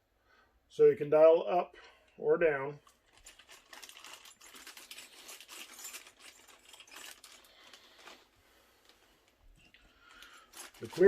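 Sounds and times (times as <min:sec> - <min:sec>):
plastic packaging rustling: 0:02.8 - 0:11.0.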